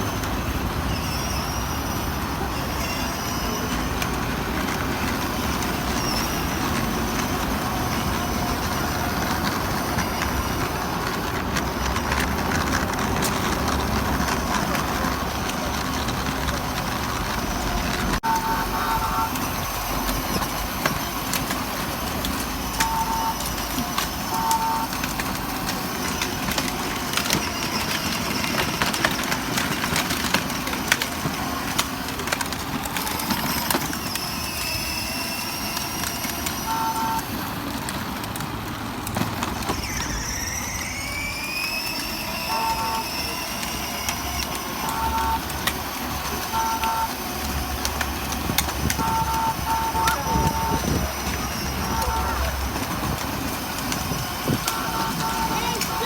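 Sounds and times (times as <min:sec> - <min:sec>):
outdoor vehicle noise: 0:00.0 - 0:56.0
electronic horn beeps: 0:18.2 - 0:19.7, 0:22.8 - 0:23.6, 0:24.2 - 0:25.1, 0:36.7 - 0:37.3, 0:42.5 - 0:43.3, 0:44.8 - 0:45.5, 0:46.4 - 0:47.3, 0:48.9 - 0:52.6, 0:54.6 - 0:56.0.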